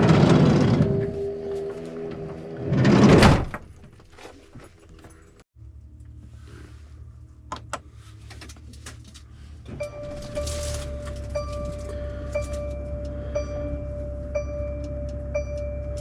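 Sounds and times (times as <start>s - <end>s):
van engine idling: 5.2s - 16.0s
sustained steady tone: 9.7s - 16.0s.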